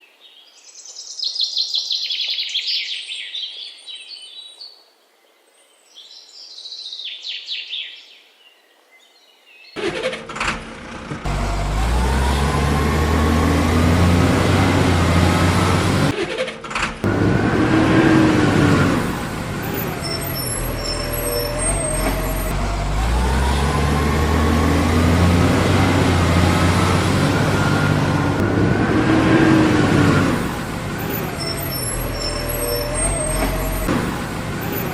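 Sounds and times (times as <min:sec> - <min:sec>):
truck engine revving: 0:09.8 - 0:34.9.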